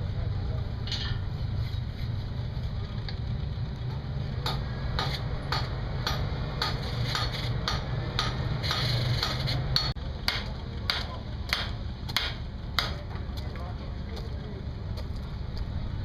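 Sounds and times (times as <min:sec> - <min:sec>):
hammer striking iron on anvil: 0:04.4 - 0:13.0.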